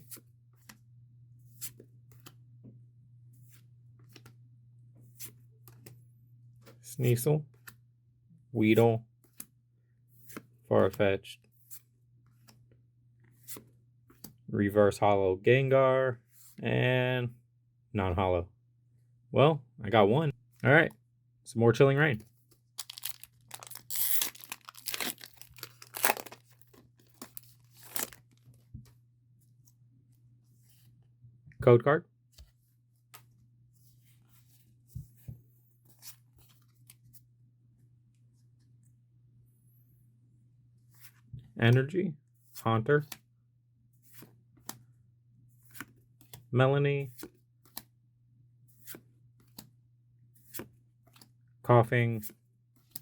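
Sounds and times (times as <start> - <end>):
packaging torn and crinkled: 22.8 - 28.4
cards brushing against cards: 50.4 - 51.2.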